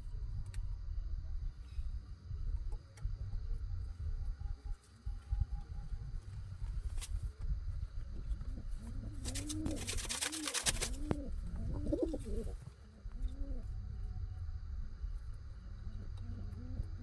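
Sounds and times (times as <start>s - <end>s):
pigeons cooing: 8.5s - 13.9s, 15.8s - 17.0s.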